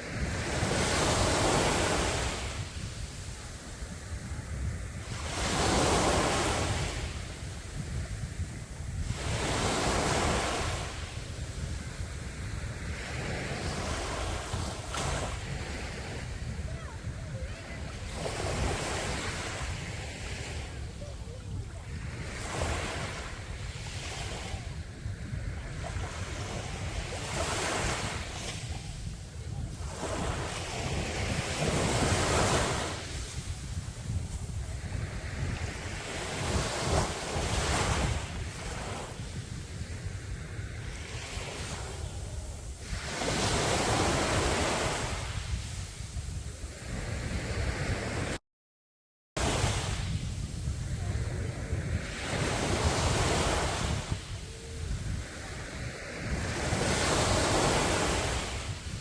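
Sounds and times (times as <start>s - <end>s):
sea waves breaking on shore: 0.0s - 48.4s, 49.4s - 59.0s
wind rumbling on microphone: 0.0s - 48.4s, 49.4s - 59.0s.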